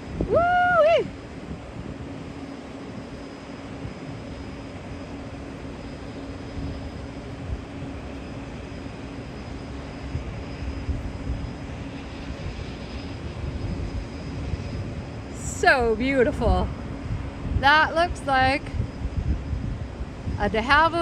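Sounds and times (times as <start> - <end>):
plane engine droning: 0.0 - 21.0
low uneven rumble: 9.4 - 21.0.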